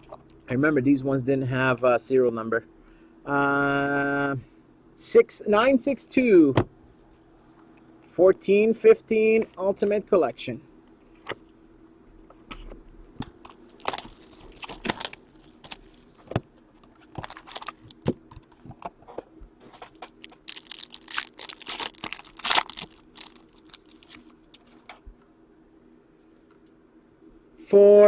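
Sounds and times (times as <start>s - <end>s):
faint steady hum: 0.0s - 28.0s
plastic wrapping crinkling: 13.1s - 18.8s, 19.6s - 24.9s.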